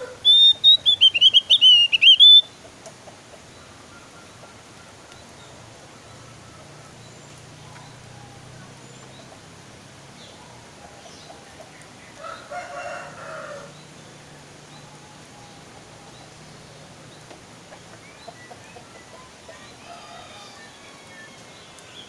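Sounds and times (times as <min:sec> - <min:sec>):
rooster crowing: 0:00.0 - 0:00.5, 0:12.2 - 0:13.8, 0:18.9 - 0:21.9
songbirds chirping: 0:00.0 - 0:22.0.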